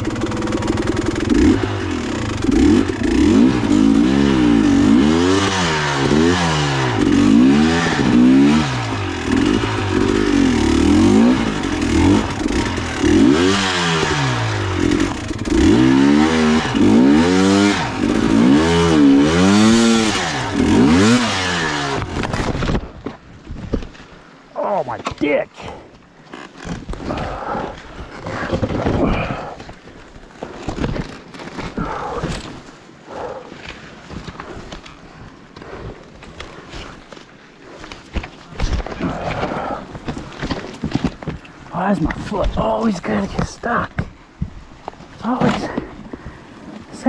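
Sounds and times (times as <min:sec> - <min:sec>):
dirt bike engine revving: 0:00.0 - 0:22.6.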